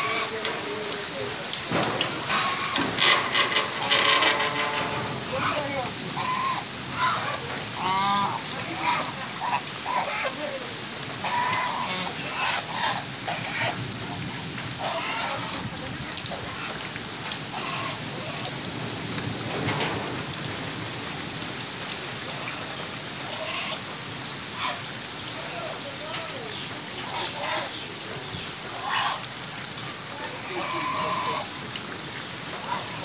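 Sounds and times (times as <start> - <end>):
geese calling: 0.0 - 0.5, 1.8 - 18.7, 22.3 - 23.9, 24.5 - 25.0, 26.0 - 29.5, 30.2 - 31.6, 32.4 - 33.0
rain on puddles: 0.0 - 33.0.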